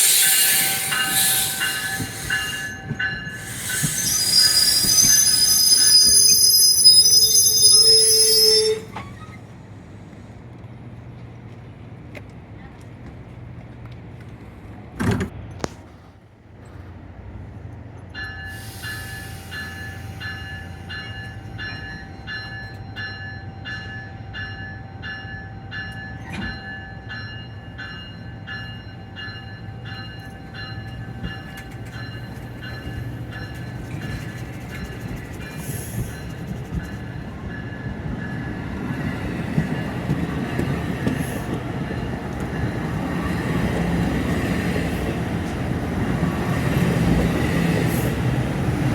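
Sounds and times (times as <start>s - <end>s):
train bell ringing: 0.0s - 8.9s, 18.0s - 43.7s
train rumble: 0.0s - 48.9s.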